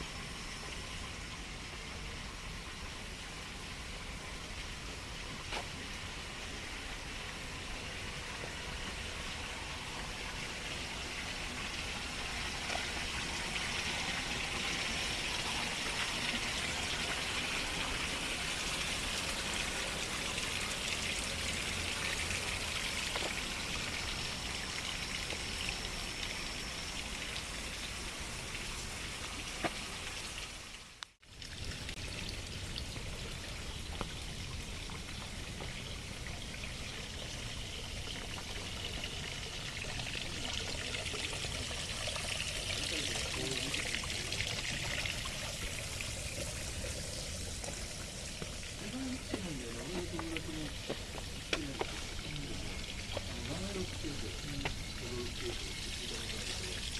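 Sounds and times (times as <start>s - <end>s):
stream water rushing: 4.6s - 56.9s.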